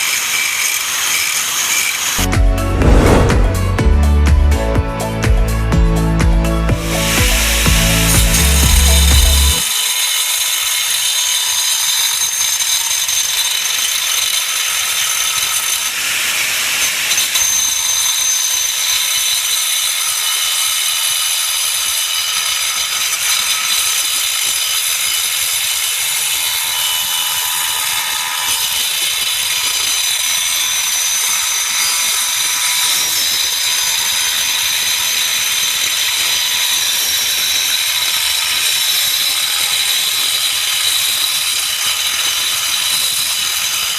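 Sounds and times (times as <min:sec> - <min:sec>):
angle grinder grinding: 0:18.0 - 0:43.9.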